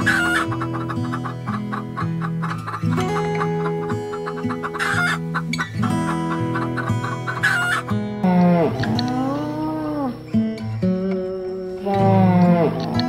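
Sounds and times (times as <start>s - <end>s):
harsh chicken squawks: 0.0s - 8.0s
chickens clucking: 0.0s - 10.2s
guitar music with steady beat: 0.0s - 13.0s
long animal call: 6.3s - 10.4s, 11.8s - 13.0s.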